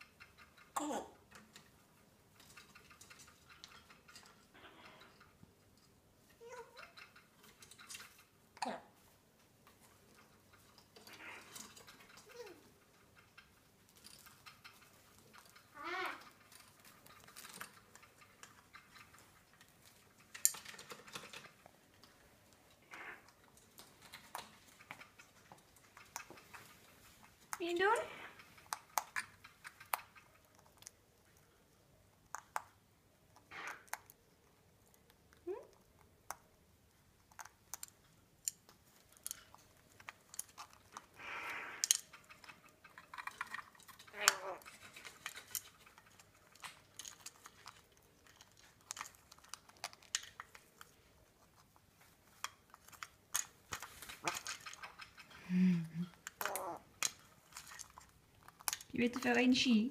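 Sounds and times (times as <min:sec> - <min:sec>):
parrot chewing with its beak: 0:00.0 - 0:59.3
parrot warbling call: 0:15.8 - 0:16.3, 0:44.1 - 0:44.7.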